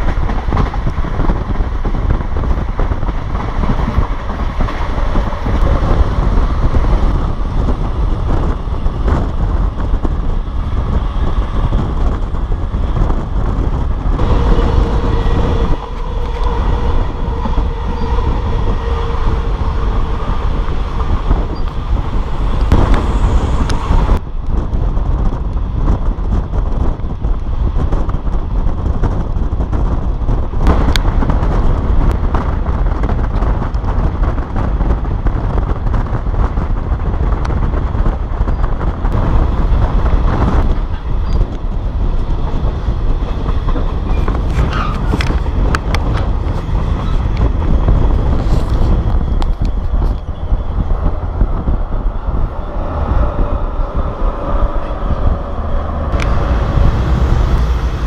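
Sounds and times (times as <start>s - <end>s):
rushing air: 0.0s - 25.4s, 39.0s - 58.0s
train wheels rumbling on rails: 0.0s - 58.0s.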